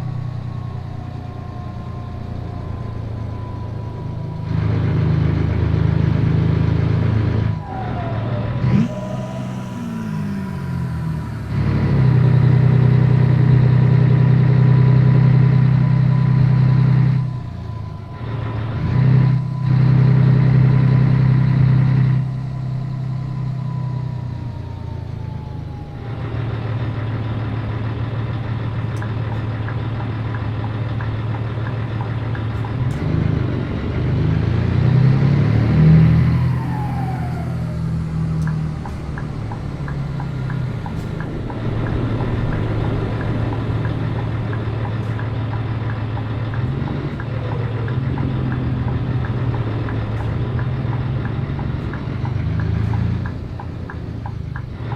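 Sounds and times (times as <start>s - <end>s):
diesel truck engine running: 0.0s - 54.9s
falling tone: 7.0s - 14.8s, 35.5s - 50.4s.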